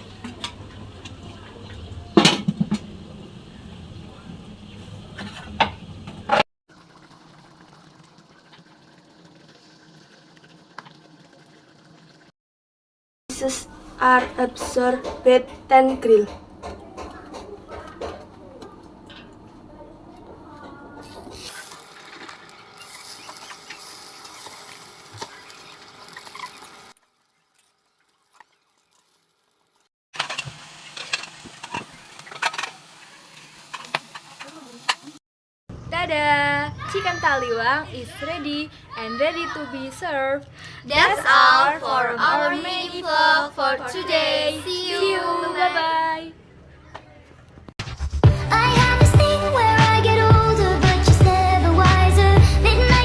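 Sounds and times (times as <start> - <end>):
pan simmering with bubbling hiss: 6.7 - 12.3, 21.0 - 35.2
chicken sizzling on a grill: 21.0 - 35.2.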